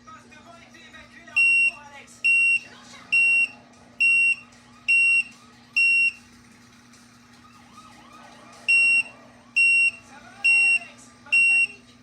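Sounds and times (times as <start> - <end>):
electronic alarm beeping: 1.4 - 6.2, 8.7 - 11.8.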